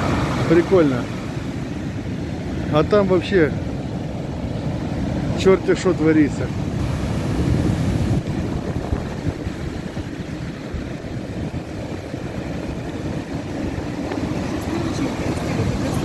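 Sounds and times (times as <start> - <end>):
breaking waves roaring: 0.0 - 16.0
wind buffeting microphone: 6.4 - 16.0.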